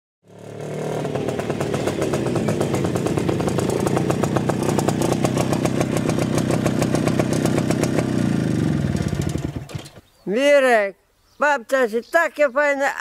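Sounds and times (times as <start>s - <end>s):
car engine idling: 0.6s - 8.2s.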